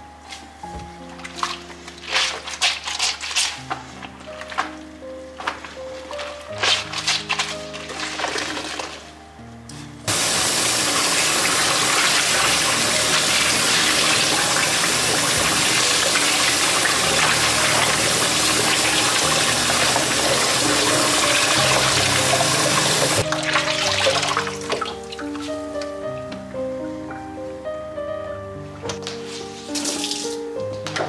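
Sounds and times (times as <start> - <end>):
soft background music: 0.0 - 31.0
water running from a tap: 10.1 - 25.0.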